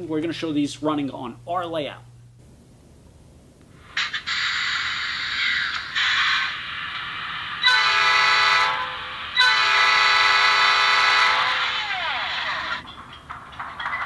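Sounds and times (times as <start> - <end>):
hissing diesel engine sound: 3.8 - 12.7
diesel air horn blasts: 7.6 - 11.8.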